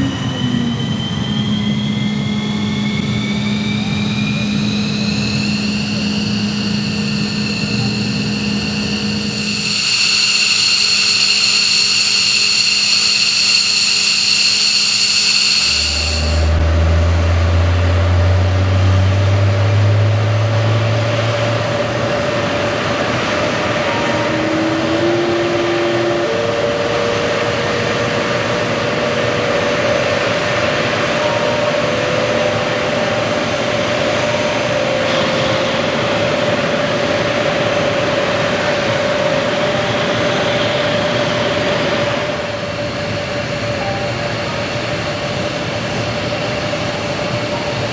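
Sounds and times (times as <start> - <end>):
aircraft engine hum: 0.0 - 47.9
aircraft turbine whine: 0.0 - 47.9
rushing hiss: 5.8 - 16.6.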